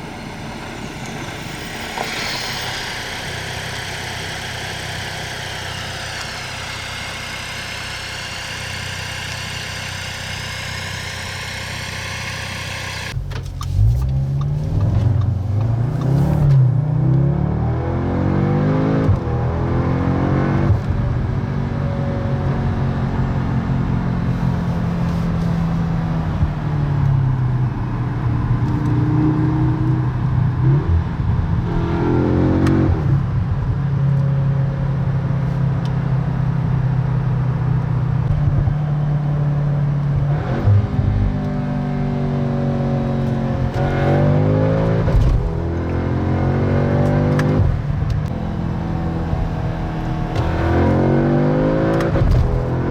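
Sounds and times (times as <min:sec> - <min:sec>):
car engine revving: 0:00.0 - 0:20.9, 0:40.1 - 0:52.9.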